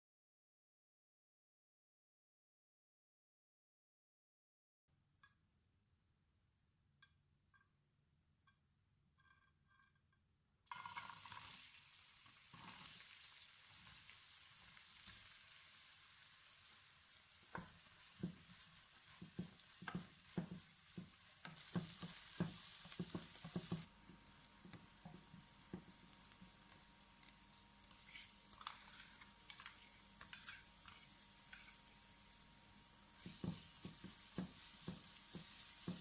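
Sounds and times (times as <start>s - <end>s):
onions sizzling in hot oil: 10.7s - 36.0s
spoon scraping a pot: 27.9s - 32.0s, 33.2s - 36.0s.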